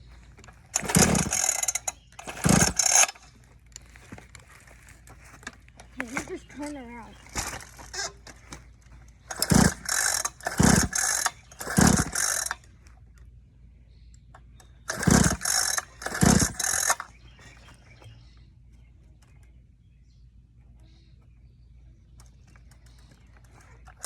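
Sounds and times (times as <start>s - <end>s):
dirt bike engine cranking: 0.0s - 13.4s, 14.4s - 18.0s, 22.1s - 24.0s.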